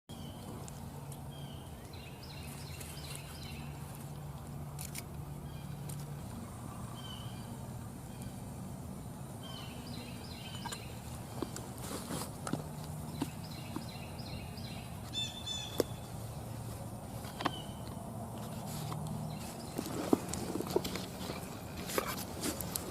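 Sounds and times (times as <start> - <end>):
birds chirping: 0.1 - 22.9
low background hum: 0.1 - 22.9.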